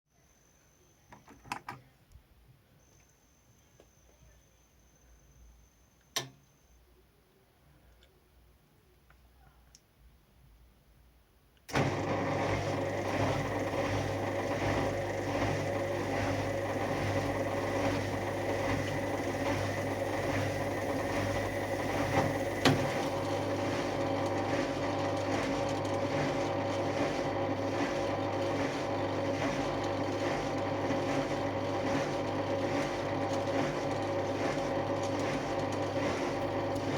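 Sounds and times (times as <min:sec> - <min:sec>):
washing machine humming: 0:11.7 - 0:36.9.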